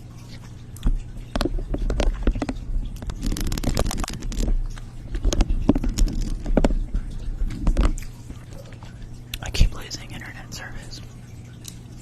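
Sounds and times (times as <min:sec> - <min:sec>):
low steady hum: 0:00.0 - 0:12.0
sharp clicks and crackling: 0:00.8 - 0:08.2.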